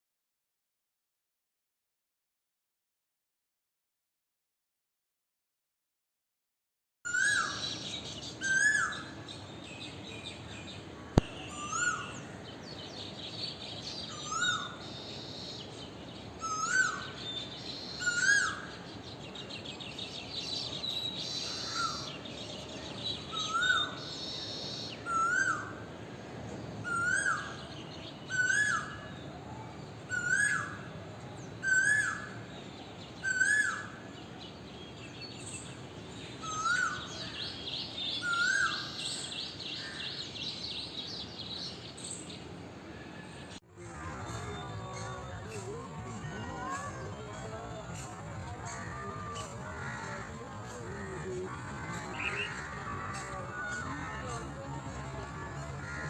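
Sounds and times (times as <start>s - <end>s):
small birds chattering: 44.2s - 56.0s.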